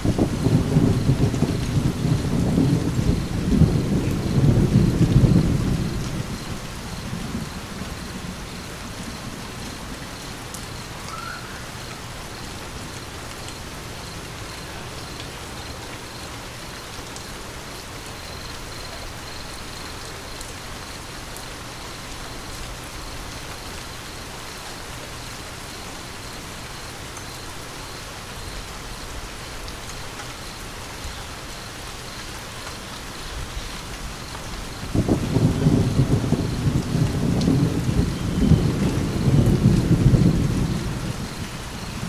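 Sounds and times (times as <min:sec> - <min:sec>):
low thunder rumble: 0:00.0 - 0:15.8, 0:33.3 - 0:42.0
steady rain falling: 0:00.0 - 0:42.0.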